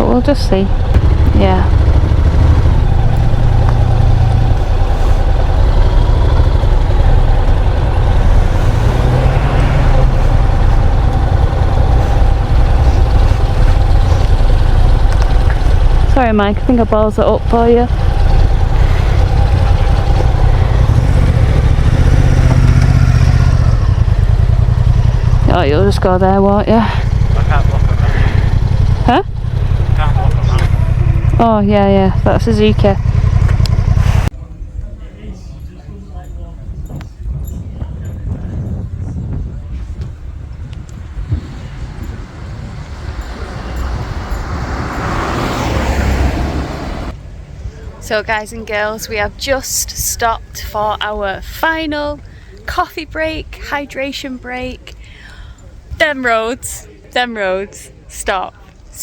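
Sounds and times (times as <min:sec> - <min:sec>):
motorcycle engine running: 0:00.0 - 0:34.3, 0:37.4 - 0:47.2
road noise rushing: 0:00.0 - 0:35.4, 0:36.0 - 0:59.0
heavy low rumble: 0:00.0 - 0:56.1.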